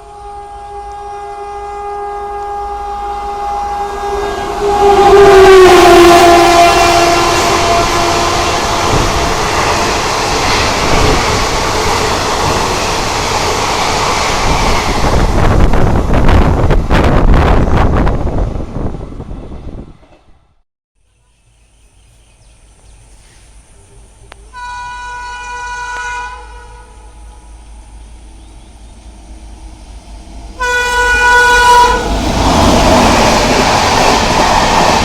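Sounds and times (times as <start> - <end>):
train horn: 0.0 - 10.0, 24.5 - 27.6, 30.6 - 32.2
train coaches rumbling: 0.0 - 20.6, 22.1 - 35.0.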